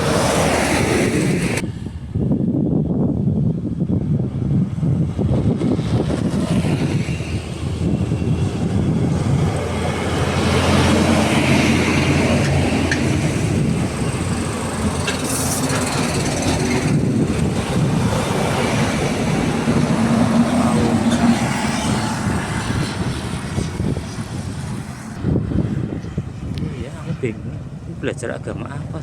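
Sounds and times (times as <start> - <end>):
road and traffic noise: 0.0 - 29.0
heavy truck engine running: 7.4 - 26.0.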